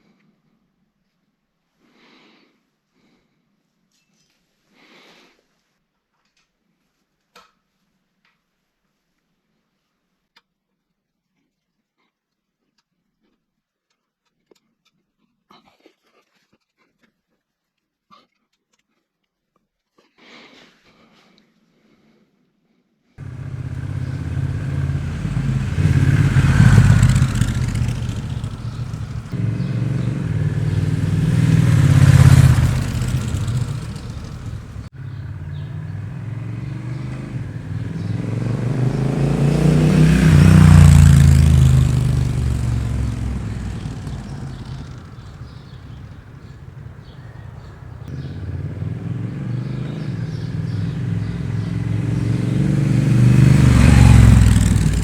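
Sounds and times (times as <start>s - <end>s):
motorcycle riding past: 23.2s - 55.0s.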